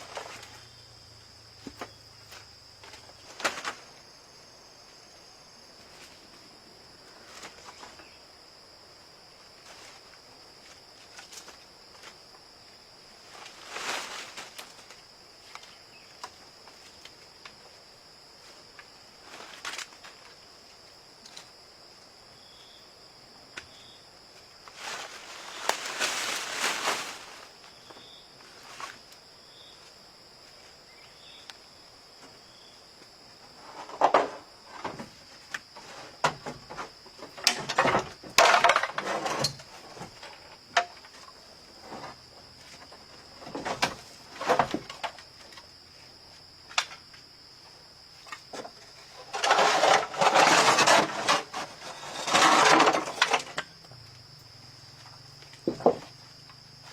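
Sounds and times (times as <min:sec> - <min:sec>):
high-pitched insect drone: 0:00.0 - 0:56.9
rustling: 0:13.2 - 0:17.2, 0:18.4 - 0:20.4, 0:24.6 - 0:29.2, 0:48.2 - 0:53.6
knocks and scrapes of handled material: 0:48.3 - 0:53.5.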